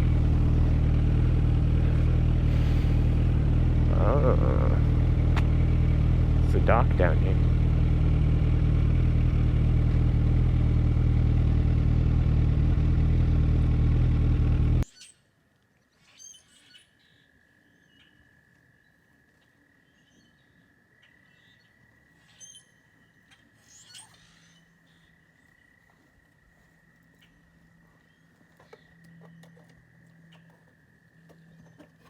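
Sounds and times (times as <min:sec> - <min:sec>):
birds chirping: 0:00.0 - 0:08.4, 0:19.8 - 0:32.0
motorcycle engine running: 0:00.0 - 0:14.8.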